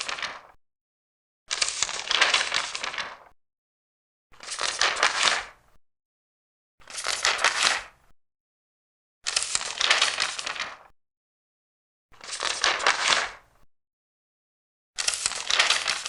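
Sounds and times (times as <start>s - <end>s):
paper pages turning: 0.0s - 0.6s, 1.5s - 3.3s, 4.4s - 5.5s, 6.9s - 7.9s, 9.3s - 10.9s, 12.2s - 13.4s, 15.0s - 16.0s.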